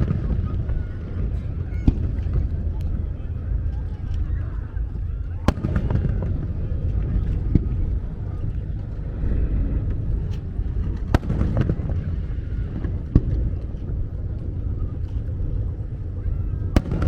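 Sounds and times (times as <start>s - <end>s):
fireworks bursting: 0.0s - 4.2s, 5.4s - 8.2s, 10.8s - 16.0s, 16.6s - 17.0s
steady low rumble: 0.0s - 17.0s.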